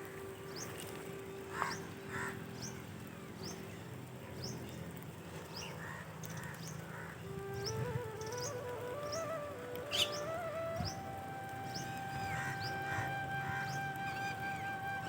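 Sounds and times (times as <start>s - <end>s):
crows cawing: 1.5s - 2.4s, 5.8s - 7.2s.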